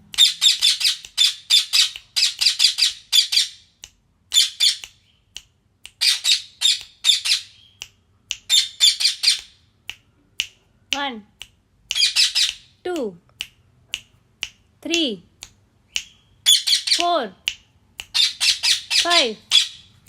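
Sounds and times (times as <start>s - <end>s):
parrot squawking: 0.2s - 3.7s, 4.4s - 4.8s, 6.0s - 7.6s, 8.5s - 9.5s, 11.9s - 12.7s, 16.4s - 17.0s, 18.1s - 19.9s.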